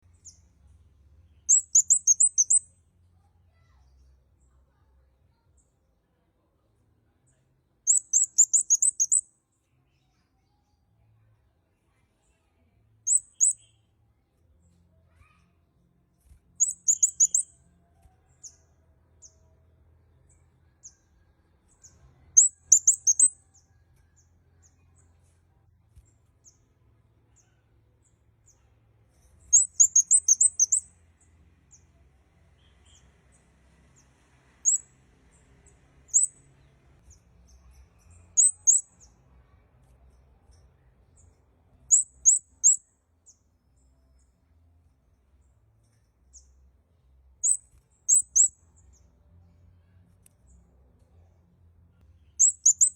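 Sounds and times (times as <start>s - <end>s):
bird high thin chirps: 1.4s - 2.7s, 7.9s - 9.2s, 13.1s - 13.8s, 16.6s - 17.6s, 22.4s - 23.6s, 29.1s - 30.8s, 34.6s - 34.8s, 36.1s - 36.4s, 37.5s - 39.1s, 41.9s - 42.8s, 47.4s - 48.5s, 52.3s - 52.9s.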